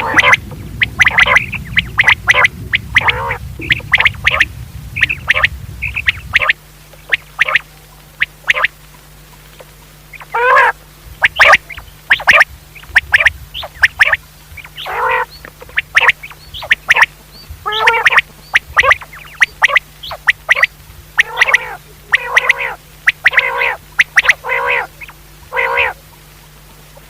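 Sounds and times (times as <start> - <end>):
quail calling: 0.0 - 8.8, 9.4 - 26.3
faint steady hum: 0.0 - 27.0.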